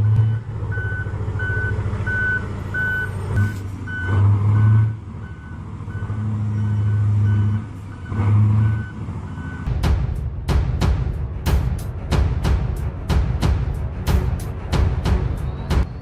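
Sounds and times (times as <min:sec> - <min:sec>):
truck reversing alarm beeping: 0:00.0 - 0:09.7
low diesel engine drone: 0:00.0 - 0:16.0.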